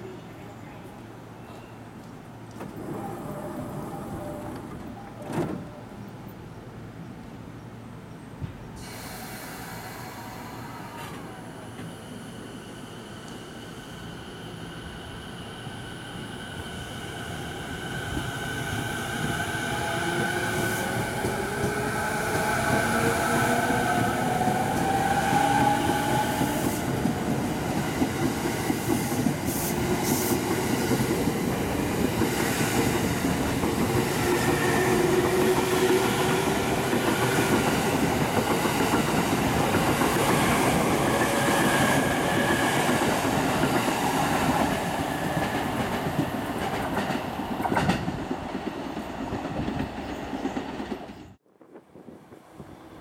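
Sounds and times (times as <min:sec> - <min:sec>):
train wheels clickety-clack: 0:20.2 - 0:52.8.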